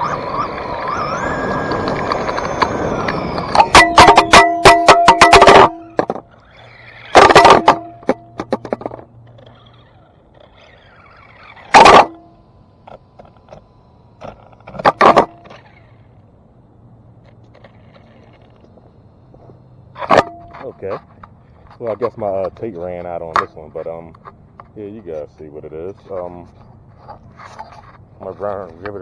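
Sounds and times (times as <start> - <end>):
rc car electric motor bursts: 0.0 - 16.2.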